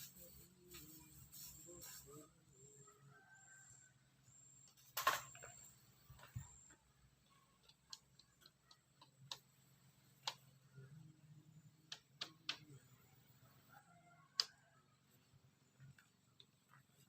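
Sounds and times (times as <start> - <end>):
faint sharp clicks and taps: 4.6 - 9.5.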